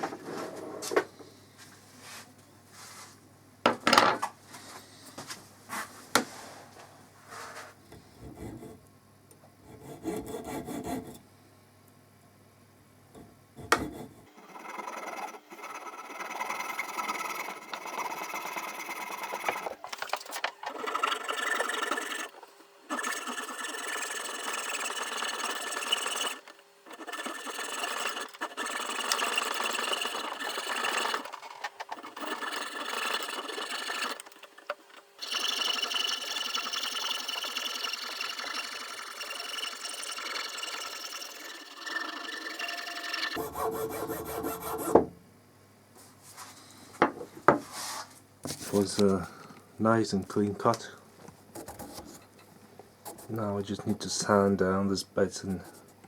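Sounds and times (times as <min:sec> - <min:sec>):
saw cutting wood: 0:09.7 - 0:11.2, 0:13.7 - 0:45.1.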